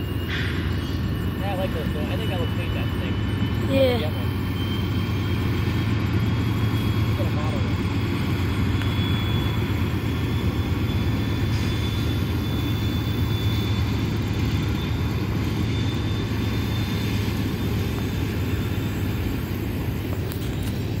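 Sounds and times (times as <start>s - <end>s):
locomotive engines rumbling: 0.0s - 21.0s.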